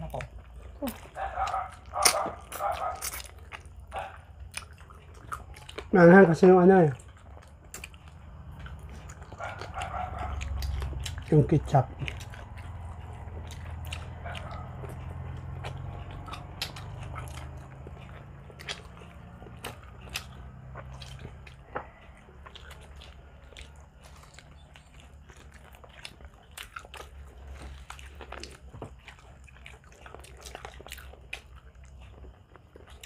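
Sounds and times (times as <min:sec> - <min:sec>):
people chewing meat: 0:00.0 - 0:33.0
wet mouth clicks and smacks: 0:16.4 - 0:17.6.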